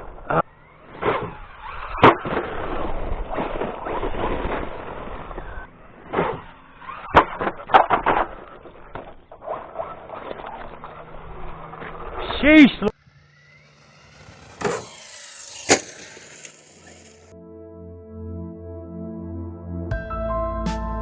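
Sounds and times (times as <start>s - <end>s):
rc truck tyres scraping: 0.0s - 17.3s
sharp knocks of rc truck: 0.8s - 12.2s, 13.0s - 17.3s.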